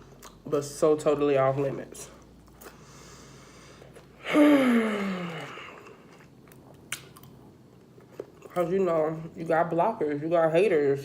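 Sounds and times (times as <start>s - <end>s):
quiet chewing: 3.7s - 4.2s, 5.4s - 8.7s
woman sighing: 4.2s - 5.8s.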